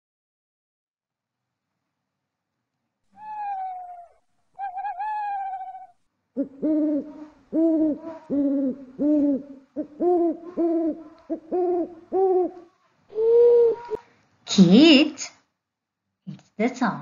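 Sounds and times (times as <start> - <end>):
owl hooting: 3.2 - 14.0.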